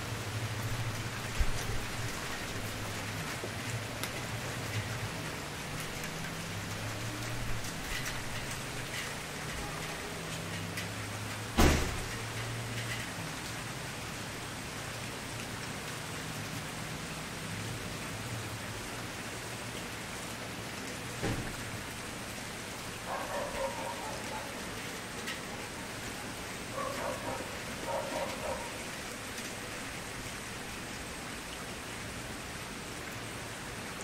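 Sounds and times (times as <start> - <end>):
campfire crackling with hiss: 0.0 - 34.0.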